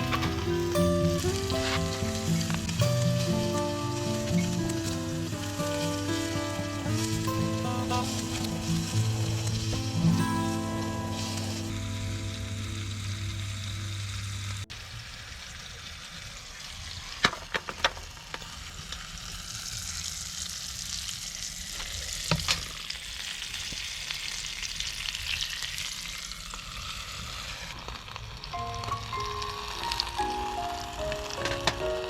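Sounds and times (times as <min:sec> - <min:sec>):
background music: 0:00.0 - 0:14.6, 0:28.6 - 0:32.0
food sizzling: 0:00.0 - 0:32.0.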